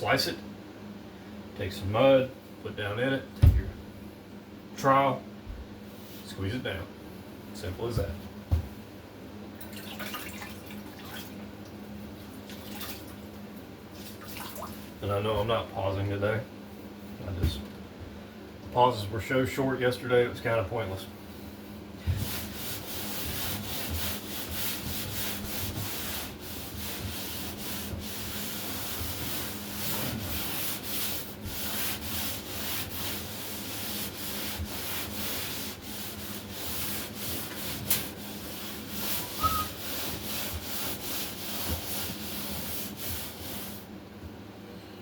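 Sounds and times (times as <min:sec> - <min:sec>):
sanding sponge scratching drywall: 0:22.0 - 0:43.9.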